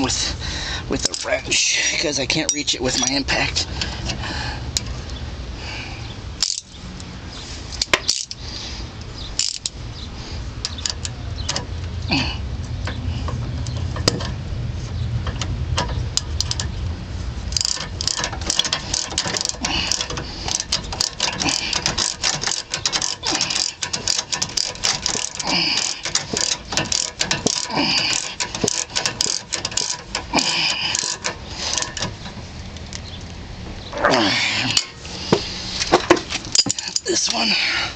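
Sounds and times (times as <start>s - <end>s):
ratchet wrench clicking: 6.4s - 6.7s, 7.8s - 8.4s, 9.4s - 9.8s, 10.6s - 11.6s, 15.2s - 16.7s, 17.5s - 32.3s.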